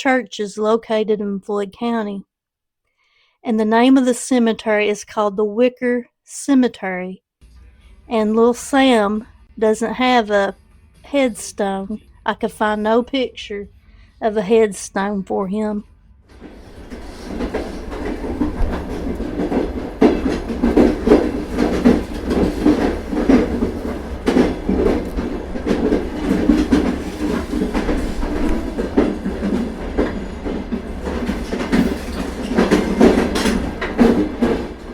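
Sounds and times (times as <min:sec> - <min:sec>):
train wheels clacking on rails: 0:16.3 - 0:34.9.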